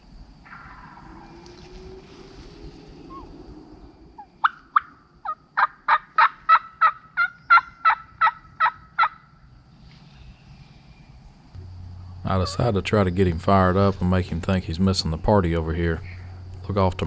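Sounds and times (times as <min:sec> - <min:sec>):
turkey yelping: 0:04.4 - 0:09.2, 0:11.6 - 0:14.0, 0:15.6 - 0:17.0.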